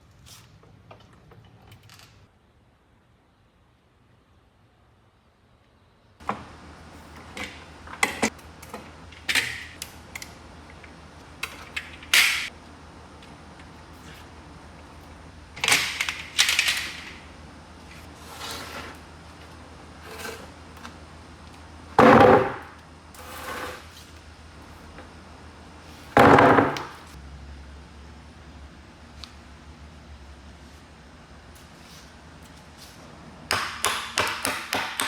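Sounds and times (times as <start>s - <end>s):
tools knocking on wood: 33.5s - 35.0s.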